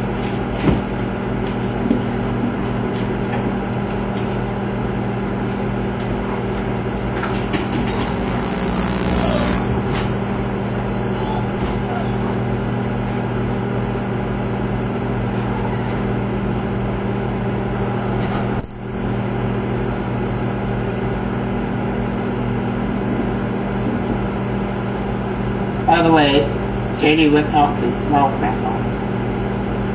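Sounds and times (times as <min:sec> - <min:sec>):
microwave oven humming: 0:07.3 - 0:10.5.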